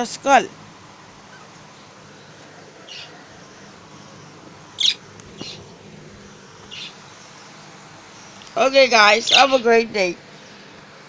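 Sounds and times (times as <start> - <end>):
parrots chirping: 1.1 - 9.8.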